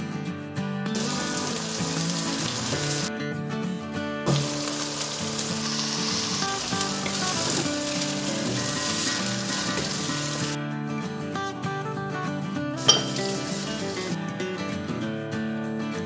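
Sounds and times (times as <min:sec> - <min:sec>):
background music: 0:00.0 - 0:16.0
chicken sizzling in hot oil: 0:01.0 - 0:03.1, 0:04.3 - 0:10.6, 0:12.8 - 0:14.1.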